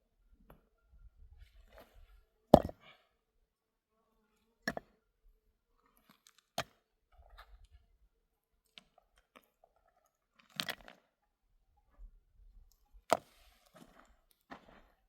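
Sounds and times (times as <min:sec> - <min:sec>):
faint crunching: 0:12.9 - 0:15.0.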